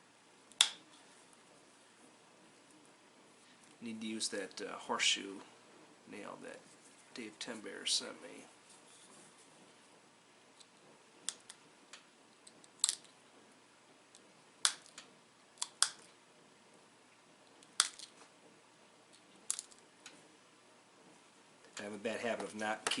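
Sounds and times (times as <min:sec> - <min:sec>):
stone flakes clicking and snapping: 0:11.3 - 0:13.1, 0:14.6 - 0:16.1, 0:17.6 - 0:18.2, 0:19.1 - 0:20.2.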